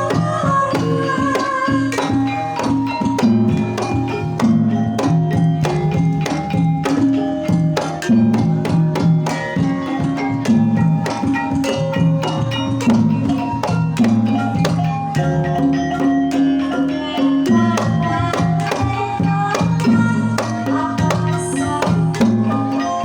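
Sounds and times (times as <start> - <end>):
gamelan melodic strokes: 0.0 - 23.0
hand drum accents: 0.0 - 23.0.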